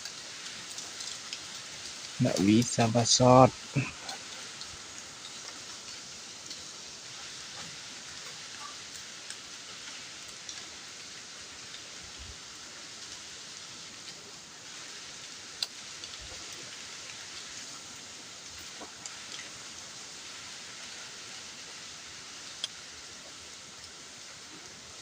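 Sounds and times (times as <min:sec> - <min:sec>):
leaves rustling in strong wind: 0:00.0 - 0:25.0
faint ticks: 0:04.0 - 0:12.0, 0:15.5 - 0:17.6, 0:22.4 - 0:24.7.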